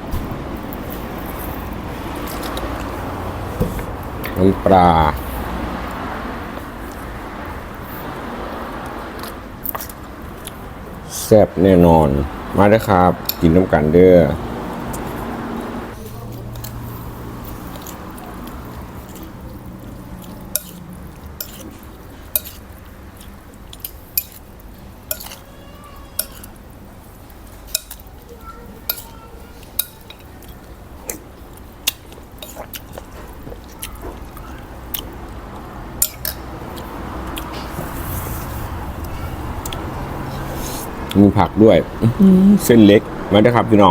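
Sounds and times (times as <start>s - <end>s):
spoon clinking against bowl: 25.1s - 25.4s.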